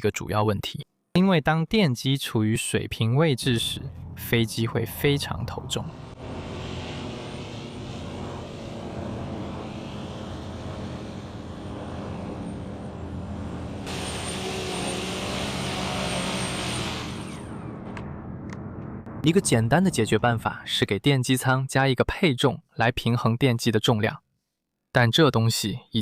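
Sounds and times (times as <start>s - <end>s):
propeller hum: 4.9s - 19.2s.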